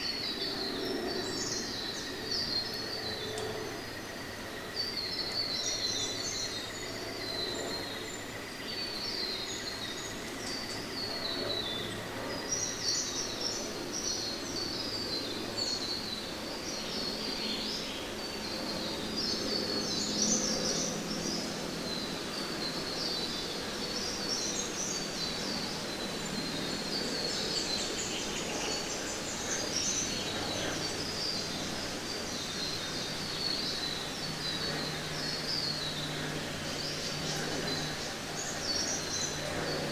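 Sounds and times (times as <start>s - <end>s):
steady background hiss: 8.0s - 39.9s.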